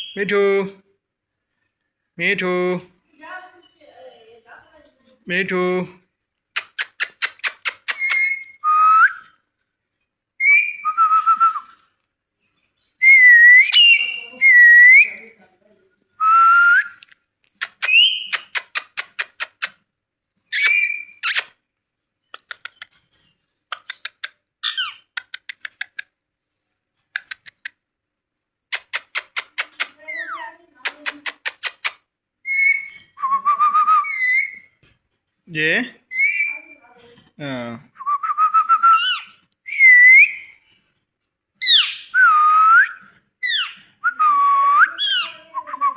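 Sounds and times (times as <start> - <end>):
parrot whistling: 32.4 - 34.7, 38.1 - 40.5, 41.6 - 45.9.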